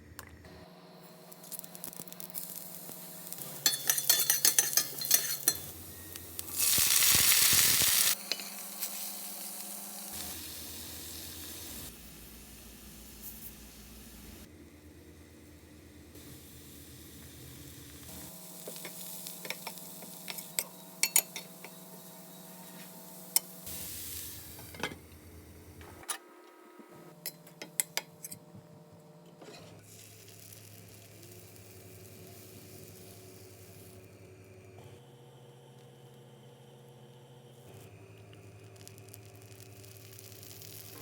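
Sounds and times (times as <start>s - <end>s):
batter sizzling: 1.0s - 14.5s, 15.8s - 24.8s, 29.8s - 34.2s, 37.9s - 41.0s
metal utensils clinking on pan: 3.6s - 5.8s, 8.2s - 9.1s, 18.8s - 21.8s.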